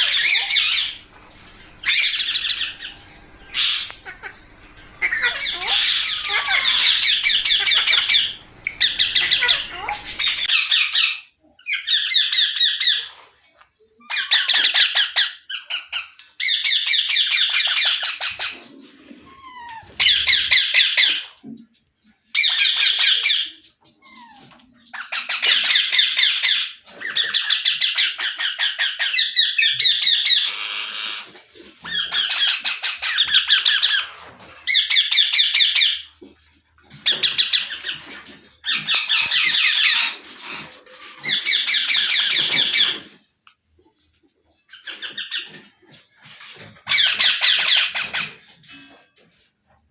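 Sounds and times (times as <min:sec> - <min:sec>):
parakeet screeching: 0:00.0 - 0:01.1, 0:01.7 - 0:13.1, 0:19.3 - 0:21.2, 0:22.4 - 0:36.0, 0:37.0 - 0:43.2, 0:46.8 - 0:48.5.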